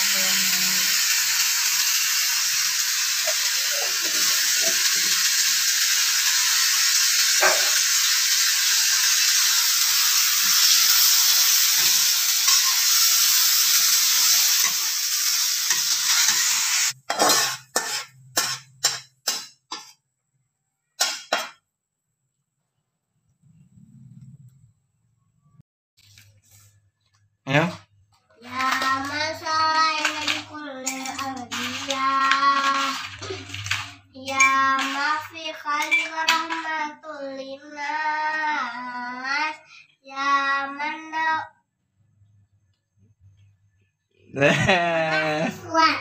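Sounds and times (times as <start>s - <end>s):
food sizzling in a wok: 0.0s - 20.0s, 28.4s - 39.8s
spatula scraping a wok: 10.4s - 20.0s, 28.4s - 36.6s
food scraped onto a plate: 16.1s - 19.9s, 31.0s - 34.0s.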